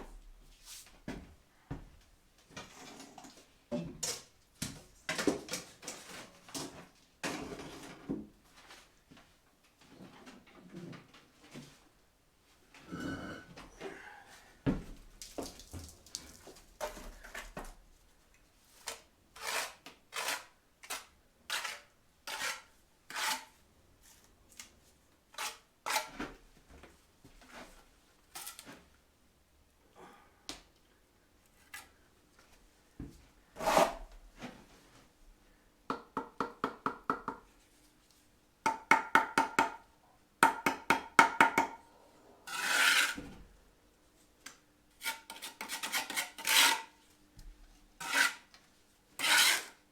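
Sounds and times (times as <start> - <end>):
hand tool scraping: 18.8 - 23.5, 33.6 - 34.1, 42.5 - 43.3, 45.0 - 46.9, 48.0 - 48.5, 49.2 - 49.8.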